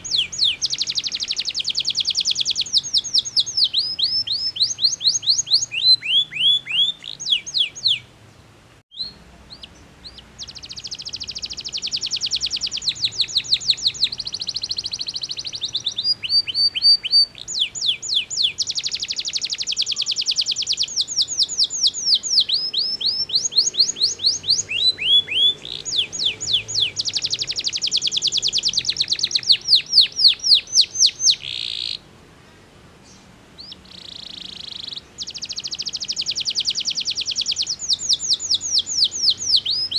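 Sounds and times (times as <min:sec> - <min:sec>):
canary singing: 0:00.0 - 0:08.1, 0:08.9 - 0:32.1, 0:33.0 - 0:39.9.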